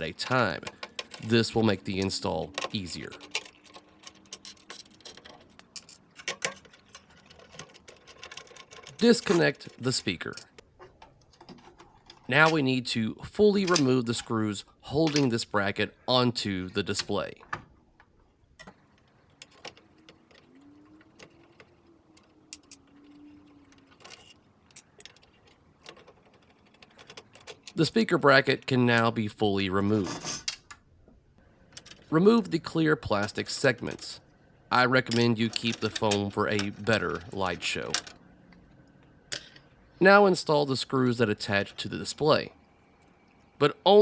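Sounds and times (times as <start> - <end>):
nut driver and metal nuts clicking: 0.0 - 10.6
faint steady hum: 0.0 - 44.0.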